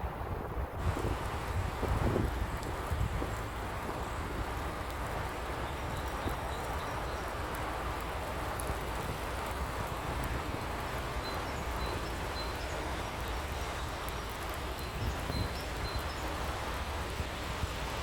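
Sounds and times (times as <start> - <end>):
pouring rain: 0.0 - 18.0.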